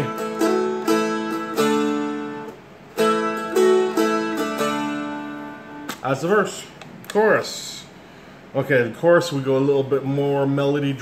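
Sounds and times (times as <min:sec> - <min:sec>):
dulcimer strummed and picked: 0:00.0 - 0:06.2.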